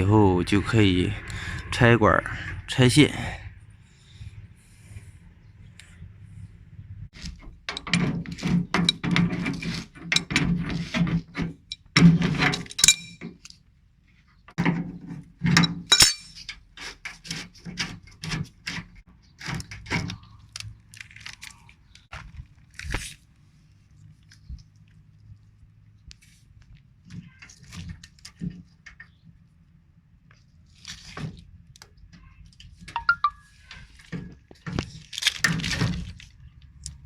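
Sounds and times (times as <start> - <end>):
metal tools clinking and knocking: 11.6 - 13.4, 15.5 - 16.6.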